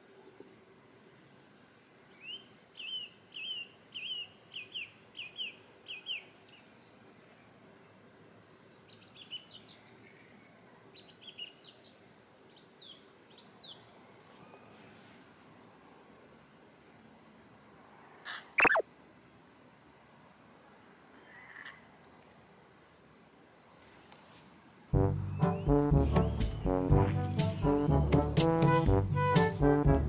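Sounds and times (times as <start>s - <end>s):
faint background noise: 0.0s - 30.0s
songbird singing: 2.1s - 8.0s, 8.6s - 14.8s, 18.3s - 18.9s, 24.9s - 30.0s.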